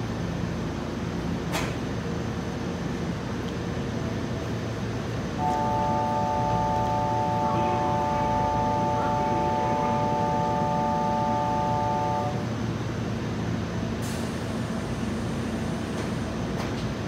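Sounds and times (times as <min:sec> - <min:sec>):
electric train humming: 0:00.0 - 0:17.0
chord of electronic tones: 0:05.4 - 0:12.5.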